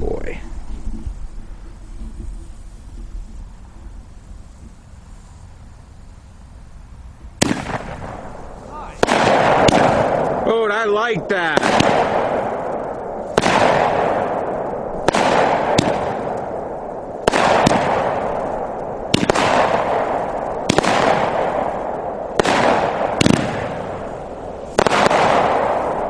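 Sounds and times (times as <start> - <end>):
firework shots firing: 7.4 - 26.0.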